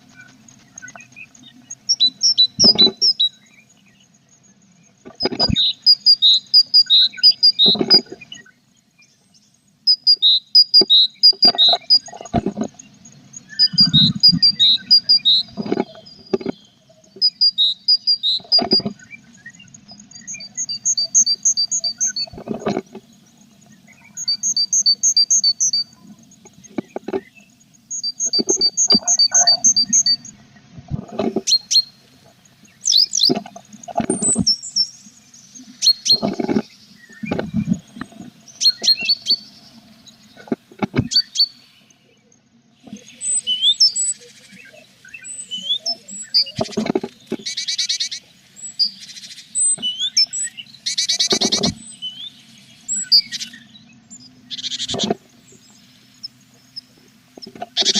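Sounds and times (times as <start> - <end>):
high-pitched bird chirps: 1.8 - 3.4, 5.2 - 8.4, 9.9 - 12.2, 13.5 - 16.6, 17.2 - 19.0, 20.2 - 22.4, 23.9 - 26.0, 27.9 - 30.3
buzzy bird trills: 9.9 - 23.0, 23.7 - 32.0, 42.9 - 57.9
birds scratching in a box: 13.6 - 16.7, 18.2 - 19.0, 22.1 - 23.1, 51.2 - 51.8.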